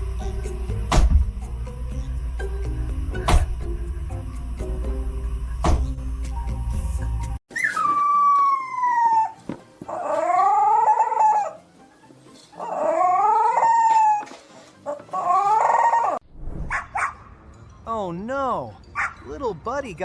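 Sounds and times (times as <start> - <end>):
dog howling: 7.6 - 11.6, 12.6 - 16.2.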